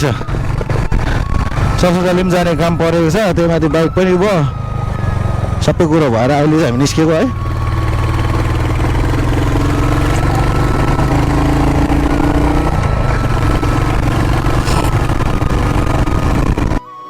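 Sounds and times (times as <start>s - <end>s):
wind rushing over microphone: 0.0s - 4.0s
motorcycle engine running: 0.0s - 16.8s.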